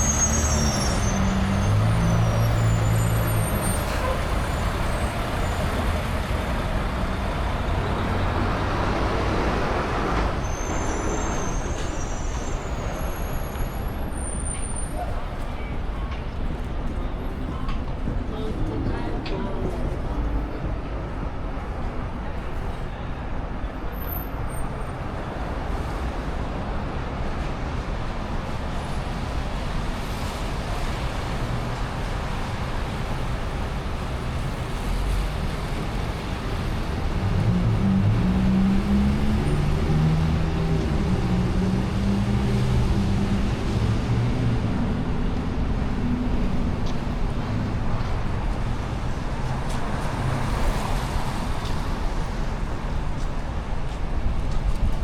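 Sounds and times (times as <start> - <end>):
hum of passing cars: 0.0 - 14.0, 25.9 - 55.0
heavy vehicle engine: 0.0 - 23.4, 24.6 - 55.0.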